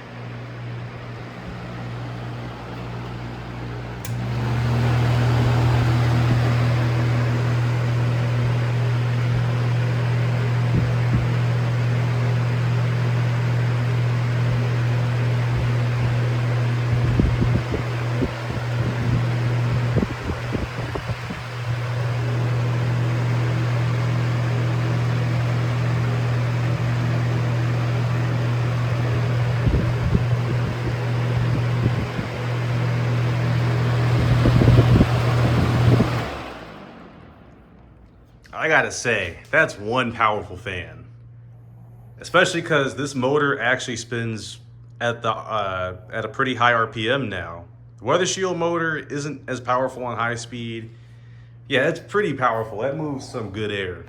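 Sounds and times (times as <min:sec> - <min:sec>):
fan speed switch click: 0:00.0 - 0:07.3
box fan motor humming: 0:00.0 - 0:41.5.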